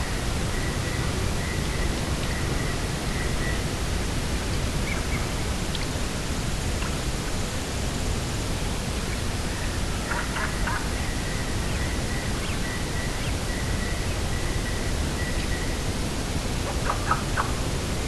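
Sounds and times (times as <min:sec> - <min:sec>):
coastal wind: 0:00.0 - 0:18.0
faint bird chirps: 0:10.1 - 0:15.9.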